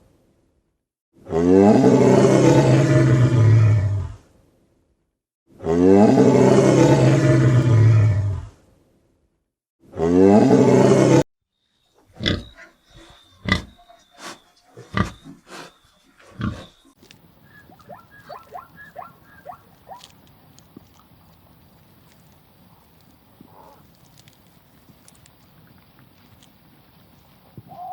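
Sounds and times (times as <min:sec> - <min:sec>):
loud pitched animal call: 0:12.1 - 0:20.2.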